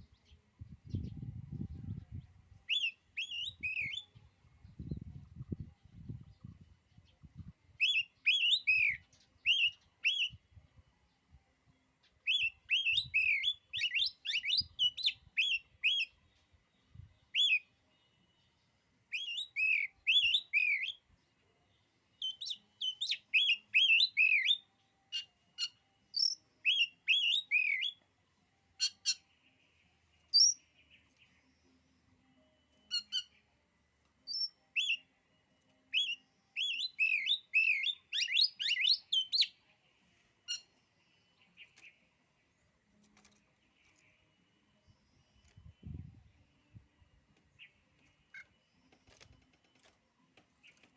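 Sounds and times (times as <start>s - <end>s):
songbird whistling: 2.6s - 4.3s, 7.8s - 10.5s, 12.2s - 16.2s, 17.2s - 18.1s, 19.1s - 21.1s, 22.1s - 28.0s, 30.3s - 30.7s, 32.5s - 33.4s, 34.2s - 39.6s.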